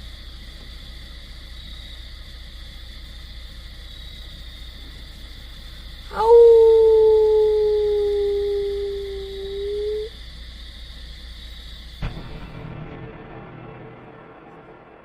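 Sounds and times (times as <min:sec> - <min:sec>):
insects chirring: 0:00.0 - 0:12.4
low hum: 0:06.1 - 0:10.1, 0:12.0 - 0:15.0.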